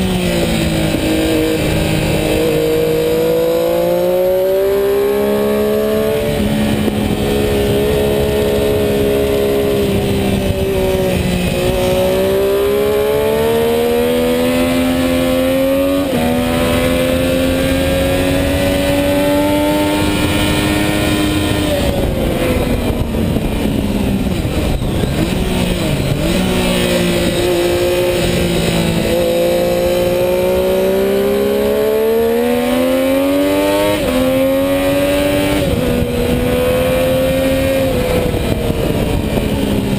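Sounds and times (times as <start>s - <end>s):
motorcycle engine accelerating: 0.0s - 39.9s
wind noise: 0.0s - 39.9s.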